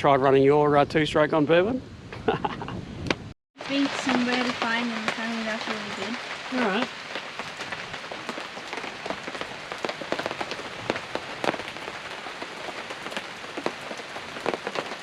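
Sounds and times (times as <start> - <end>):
steady rain: 3.6 - 15.0.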